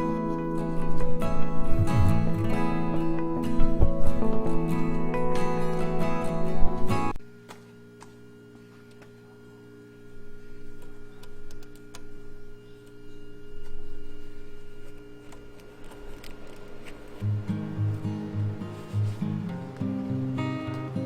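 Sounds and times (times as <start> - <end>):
steady mechanical hum: 0.0 - 21.0
low rumble: 1.5 - 4.0.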